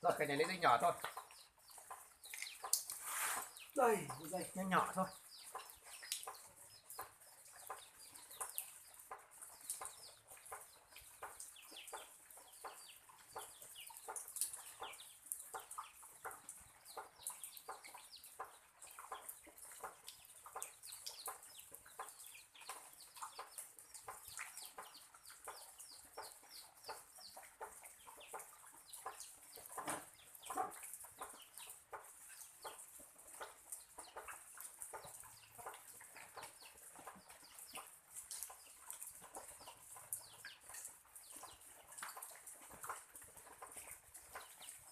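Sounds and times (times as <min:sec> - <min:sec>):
chickens clucking: 0:00.0 - 0:44.9
rain hissing: 0:02.7 - 0:05.1.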